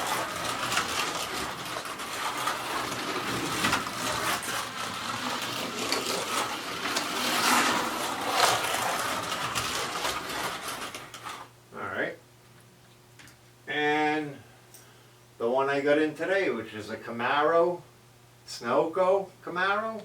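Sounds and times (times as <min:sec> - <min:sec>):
toy car rattling along track: 0:00.0 - 0:11.5.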